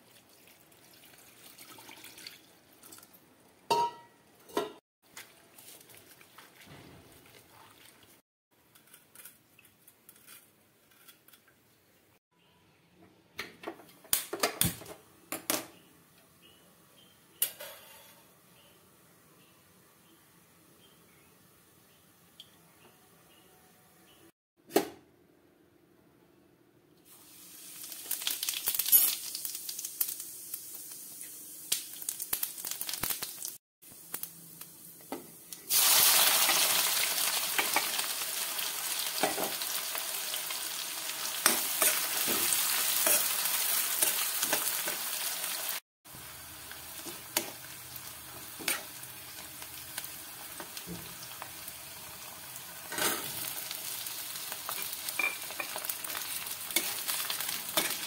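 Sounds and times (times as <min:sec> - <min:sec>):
oil sizzling in a pan: 0:27.1 - 0:58.0
onions frying: 0:27.1 - 0:58.0.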